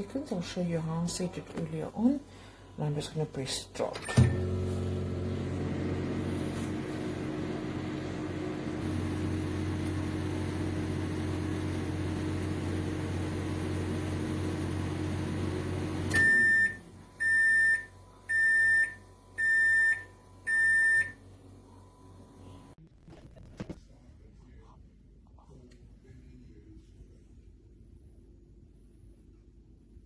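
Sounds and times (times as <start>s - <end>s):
microwave humming: 0.0s - 22.8s
microwave beeps: 4.0s - 21.3s.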